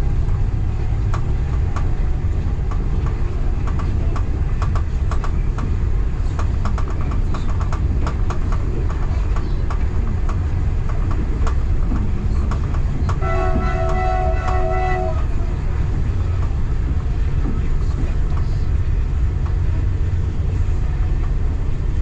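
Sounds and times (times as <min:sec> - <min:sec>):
train rumbling along track: 0:00.0 - 0:22.0
wheels clicking over rail joints: 0:00.9 - 0:14.9
multi-tone train horn: 0:13.2 - 0:15.6.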